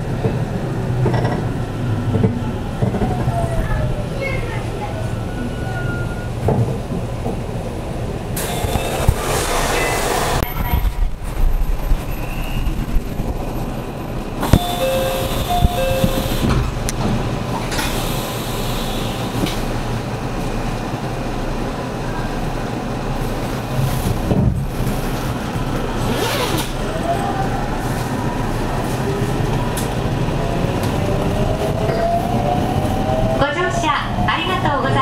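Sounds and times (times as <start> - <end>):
train wheels rumbling on rail: 0.0 - 35.0
short paired beeps: 14.6 - 16.4.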